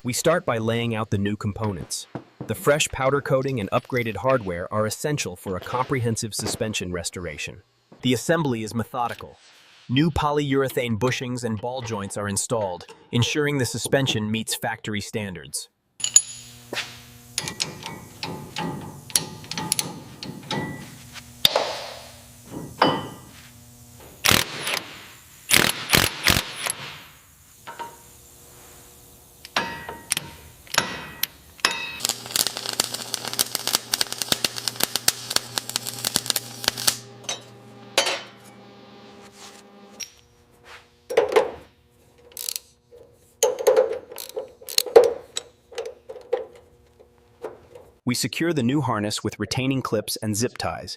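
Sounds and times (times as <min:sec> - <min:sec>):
steady low hum: 0:16.0 - 0:48.0
hissing: 0:23.5 - 0:37.2.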